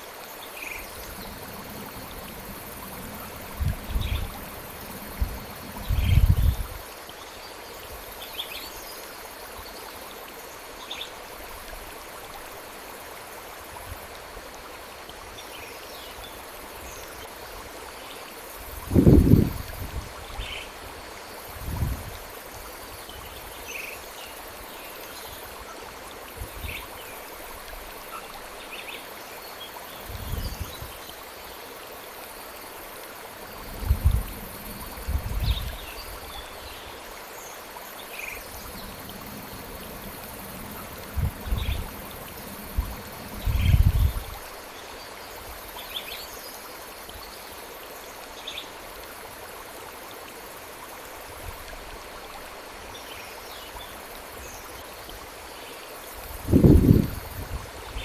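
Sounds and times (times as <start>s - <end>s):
flowing stream: 0.0s - 58.0s
low rumbles: 0.8s - 6.7s, 38.4s - 44.3s.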